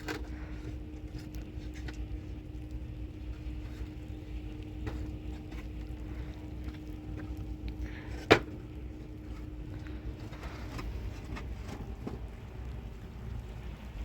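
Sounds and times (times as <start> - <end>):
faint steady hum: 0.0 - 14.0
steady low rumble: 0.0 - 14.0.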